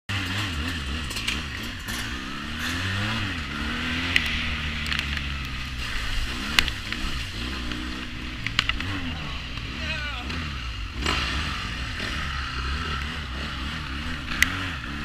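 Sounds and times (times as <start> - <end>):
sharp clicks and knocks: 0.1 - 9.7
quad bike engine revving: 0.1 - 15.0.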